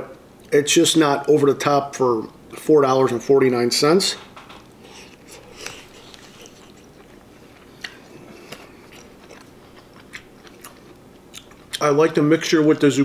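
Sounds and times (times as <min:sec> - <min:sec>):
faint chewing: 0:04.8 - 0:11.9.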